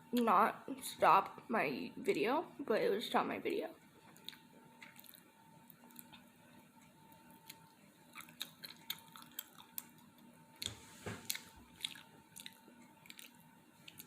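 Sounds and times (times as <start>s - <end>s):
faint steady hum: 0.0s - 14.0s
close-up chewing: 4.1s - 14.0s.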